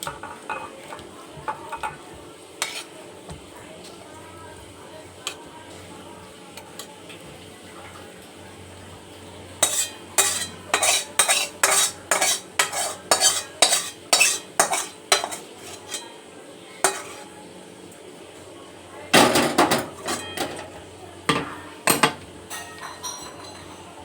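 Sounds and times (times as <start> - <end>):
spoon scraping a pot: 2.6 - 3.0, 9.6 - 16.2, 16.8 - 17.3.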